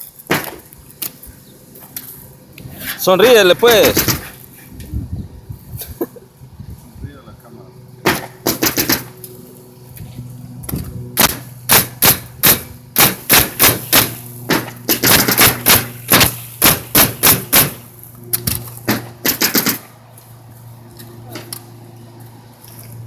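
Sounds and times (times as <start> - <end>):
nails being hammered: 0.3 - 0.6, 3.8 - 4.3, 8.0 - 9.1, 11.2 - 17.8, 18.9 - 19.9
low hum: 9.0 - 23.0.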